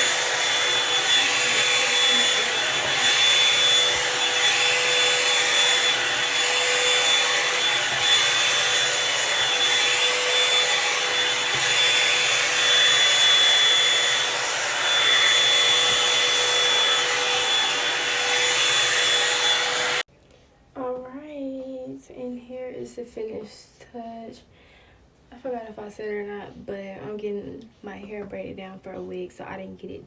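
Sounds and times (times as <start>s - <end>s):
blown air over motor whine: 0.0s - 20.0s
hair dryer brush running: 0.0s - 20.1s.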